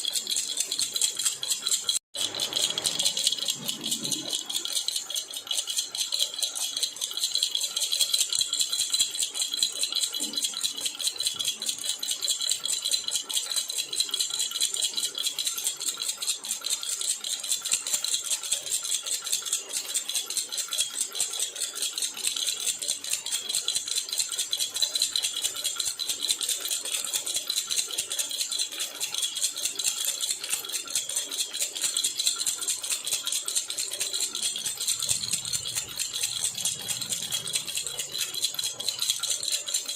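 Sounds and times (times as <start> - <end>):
baby rattle jingling: 27.0 - 39.9.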